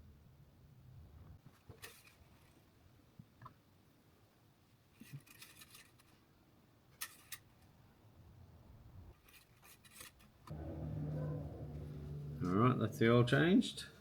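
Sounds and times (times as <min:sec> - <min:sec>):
faint handling clicks and rustles: 0:01.4 - 0:03.6, 0:04.8 - 0:06.3.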